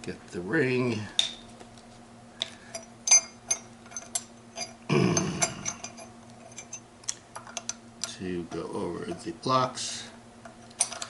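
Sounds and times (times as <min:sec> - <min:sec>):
metal parts clinking: 0:02.7 - 0:06.8, 0:10.6 - 0:11.0.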